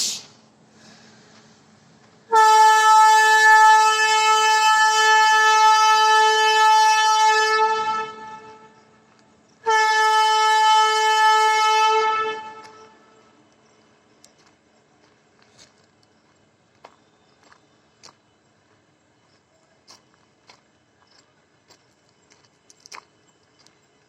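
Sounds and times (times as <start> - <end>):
train horn blasts: 2.3 - 13.4.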